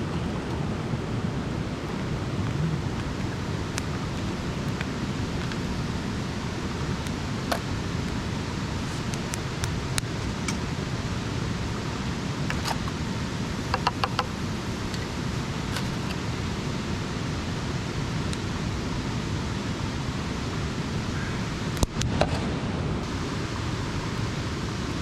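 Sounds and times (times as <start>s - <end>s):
fire low rush: 0.0s - 13.7s, 14.4s - 25.0s
campfire crackling and popping: 1.8s - 11.0s.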